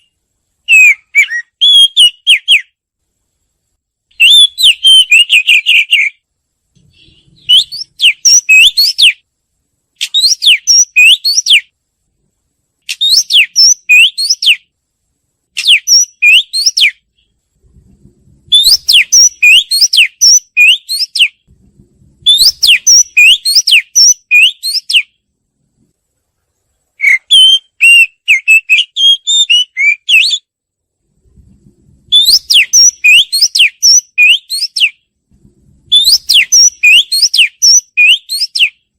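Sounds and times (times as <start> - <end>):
bird singing whistled notes: 0.0 - 2.8, 4.1 - 6.2, 6.8 - 9.2, 10.0 - 11.7, 12.9 - 14.7, 15.6 - 17.4, 18.5 - 21.5, 22.2 - 25.2, 27.0 - 30.5, 32.1 - 35.0, 35.9 - 38.9.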